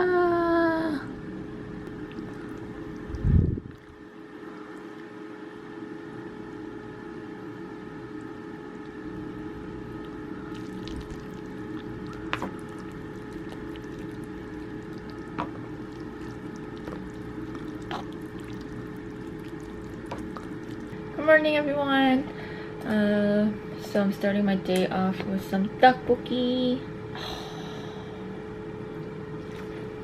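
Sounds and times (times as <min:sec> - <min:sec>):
motor hum: 0:00.0 - 0:30.0.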